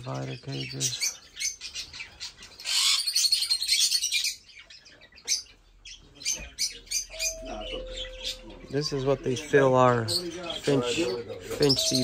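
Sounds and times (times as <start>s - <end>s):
small birds chirping and tweeting: 0.0s - 12.0s.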